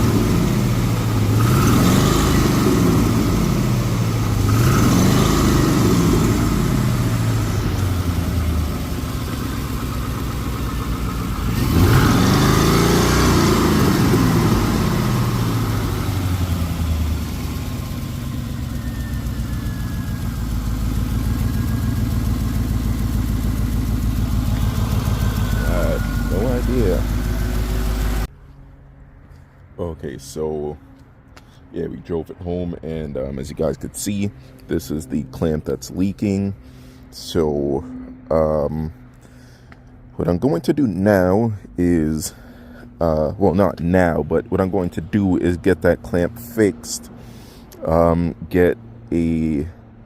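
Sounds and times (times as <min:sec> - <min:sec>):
car engine revving: 0:00.0 - 0:28.3.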